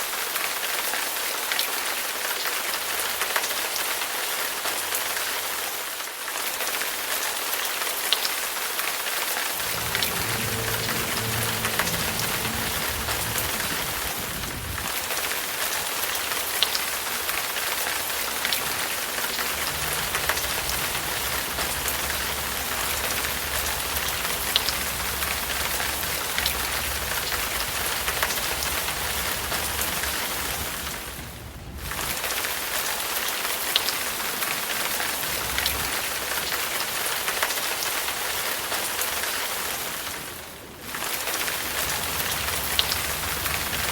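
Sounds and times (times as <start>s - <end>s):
sharp raindrops: 0.8s - 43.9s
rain hiss: 9.3s - 43.9s
low rumble: 9.5s - 15.8s, 18.5s - 32.2s, 41.8s - 43.9s.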